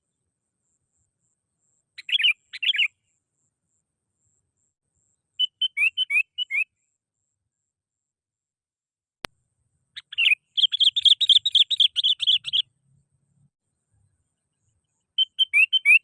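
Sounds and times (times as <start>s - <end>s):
bulbul singing: 2.0s - 3.1s, 5.4s - 6.7s, 10.0s - 12.7s, 14.9s - 16.0s.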